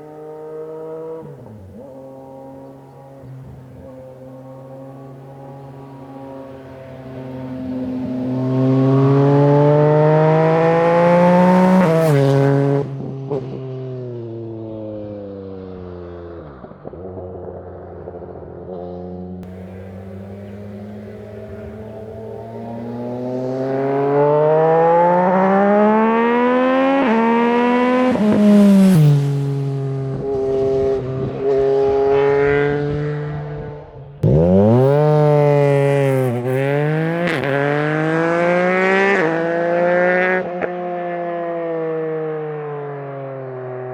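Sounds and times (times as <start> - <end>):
motorcycle upshifts: 0.0 - 13.5, 19.4 - 39.6
motorcycle engine accelerating: 0.0 - 43.9
motorcycle passing by: 0.0 - 43.9.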